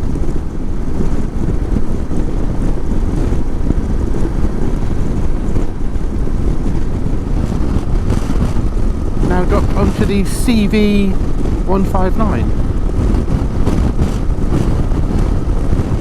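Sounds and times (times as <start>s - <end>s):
wind buffeting microphone: 0.0s - 16.0s
motorcycle engine: 3.0s - 10.4s.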